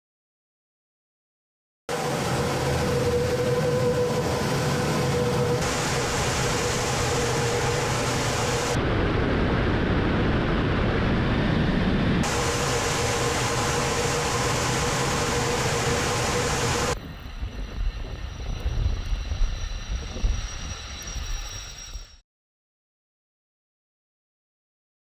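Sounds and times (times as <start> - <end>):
thin high whine: 1.9 - 9.2, 12.1 - 22.2
jet noise: 1.9 - 22.2
low rumble: 2.0 - 22.1.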